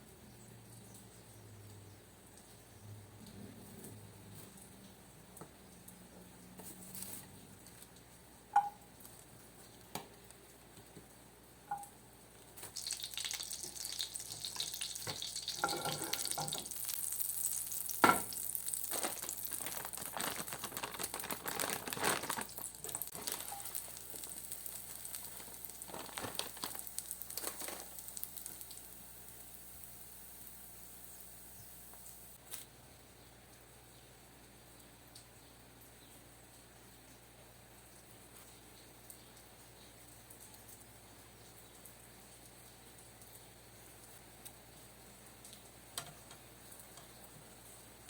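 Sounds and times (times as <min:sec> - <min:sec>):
crackling sizzle: 0:00.0 - 0:48.0.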